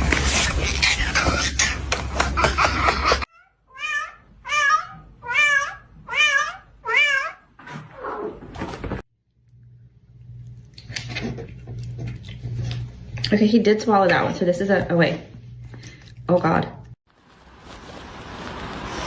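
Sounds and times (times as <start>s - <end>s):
cat meowing: 3.3s - 7.5s.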